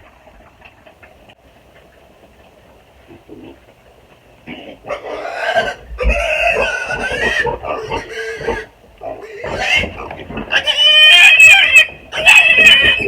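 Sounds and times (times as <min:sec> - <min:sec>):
piglet squealing: 0:05.0 - 0:13.0.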